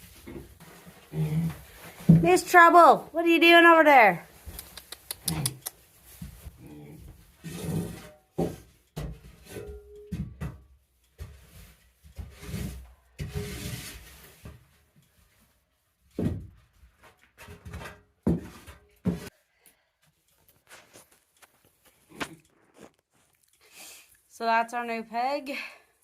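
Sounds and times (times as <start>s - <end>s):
piglet rustling: 4.3s - 6.5s, 20.4s - 23.9s.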